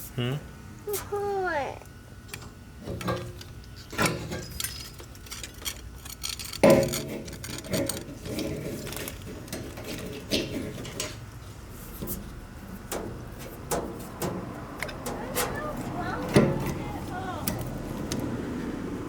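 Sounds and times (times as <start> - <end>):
hard objects clinking and knocking: 2.9 - 11.2.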